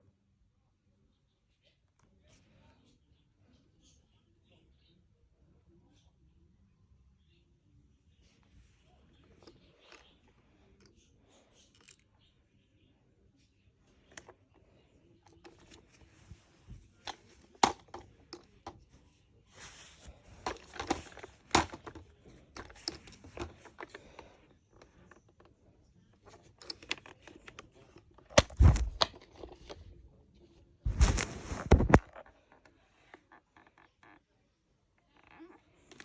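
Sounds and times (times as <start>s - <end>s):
rustling and scraping: 13.9s - 30.0s, 30.6s - 33.4s
plastic toys clicking and knocking: 17.0s - 18.8s, 20.4s - 25.5s
toys rattling: 19.8s - 25.6s.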